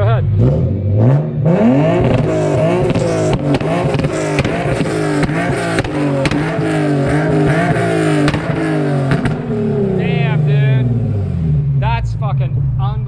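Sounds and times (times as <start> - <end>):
car engine revving hard: 0.0 - 13.0
sharp exhaust pops and cracks: 2.0 - 9.6.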